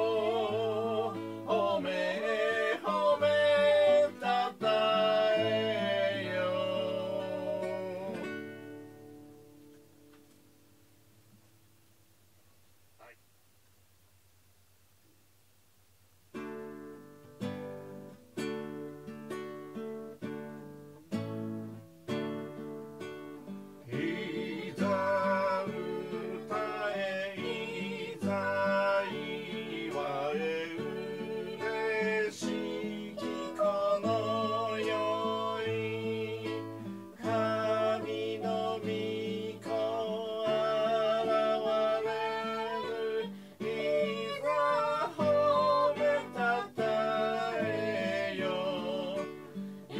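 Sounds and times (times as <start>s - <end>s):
person singing a hymn: 0.0s - 8.6s, 23.8s - 49.9s
acoustic guitar chords: 0.0s - 13.3s, 16.2s - 49.9s.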